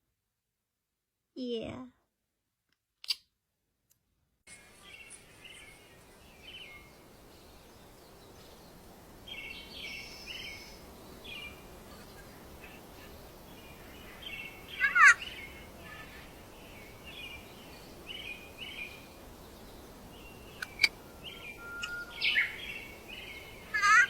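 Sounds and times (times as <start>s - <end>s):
parakeet chirping and squawking: 14.8s - 15.4s.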